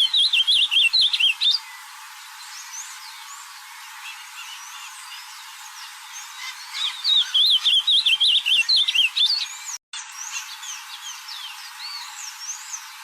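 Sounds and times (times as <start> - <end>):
bird singing warbling phrase: 0.0 - 1.6, 6.4 - 9.6
faint bird chirps: 0.0 - 13.0.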